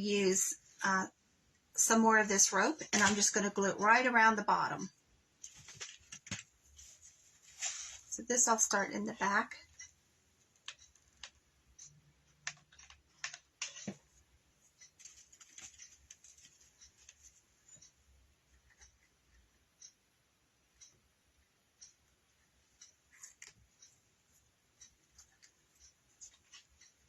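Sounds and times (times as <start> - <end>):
faint clicks and taps: 4.8 - 8.2, 9.2 - 20.0, 20.7 - 27.0.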